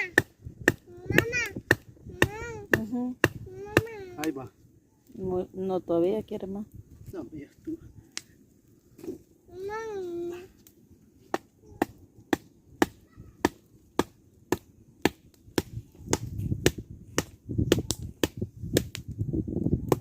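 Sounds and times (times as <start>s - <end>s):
wooden stakes pounded into ground: 0.0s - 4.4s, 11.2s - 19.1s.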